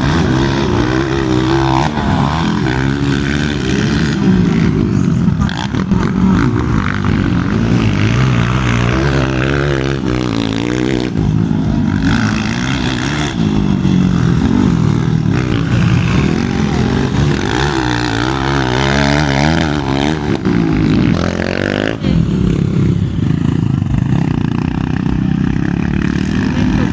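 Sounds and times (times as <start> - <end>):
motorcycle engines revving: 0.0 - 26.9.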